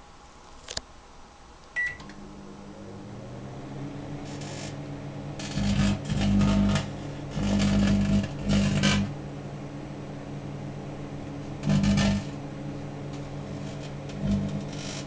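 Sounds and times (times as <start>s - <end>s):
microwave oven humming: 1.0s - 15.0s.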